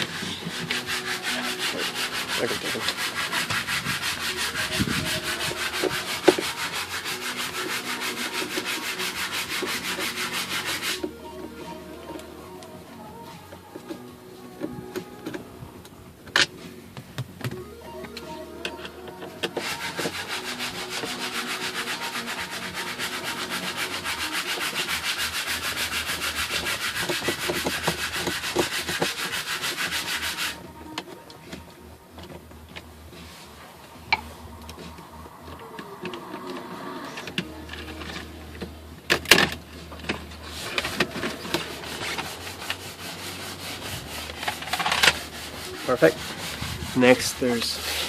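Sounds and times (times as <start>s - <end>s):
hand tool rasping rattle: 0.0s - 11.6s, 18.6s - 30.6s, 37.2s - 48.0s.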